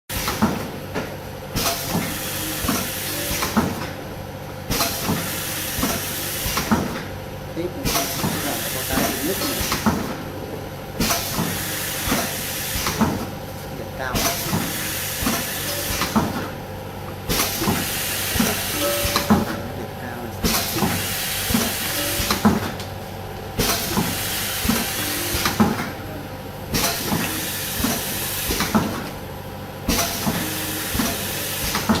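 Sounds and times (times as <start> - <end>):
mechanical clicks and clunks: 0.2 - 4.0, 17.3 - 29.2, 29.9 - 32.0
machine hissing: 4.7 - 7.0, 7.6 - 10.4, 11.0 - 13.3, 14.0 - 16.6, 17.2 - 19.7, 20.3 - 22.7, 23.6 - 29.1, 29.9 - 32.0.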